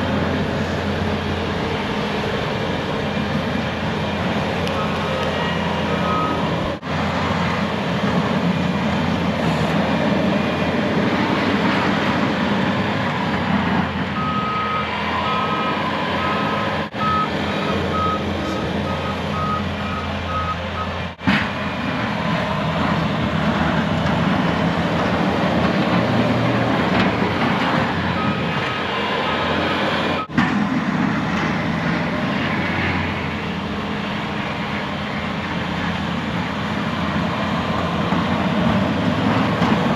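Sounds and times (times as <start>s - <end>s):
truck engine running: 0.0s - 39.9s
reversing alarm beeping: 4.7s - 6.5s, 14.2s - 21.0s, 28.1s - 29.0s.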